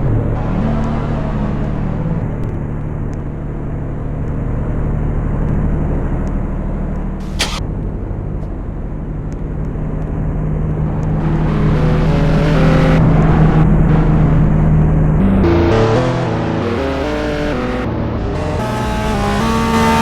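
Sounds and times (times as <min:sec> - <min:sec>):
car engine idling: 0:00.0 - 0:20.0
sharp click: 0:07.2 - 0:07.6.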